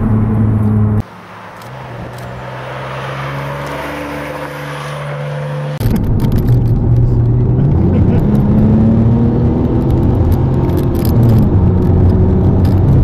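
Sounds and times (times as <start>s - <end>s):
car engine heard from inside: 0.0s - 1.1s
sports car engine approaching: 0.0s - 13.0s.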